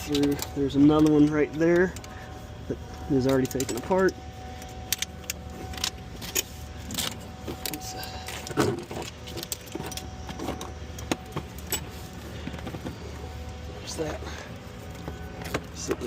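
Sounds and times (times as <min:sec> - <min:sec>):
metal tools clinking and rattling: 0:00.0 - 0:13.0
faint steady hum: 0:00.0 - 0:16.0.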